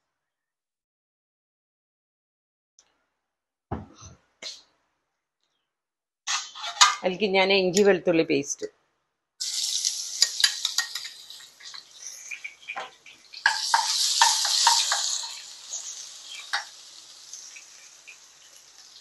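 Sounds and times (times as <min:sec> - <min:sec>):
spatula scraping a pan: 0:06.3 - 0:07.0, 0:09.5 - 0:18.6
paste sizzling in hot oil: 0:09.4 - 0:19.0.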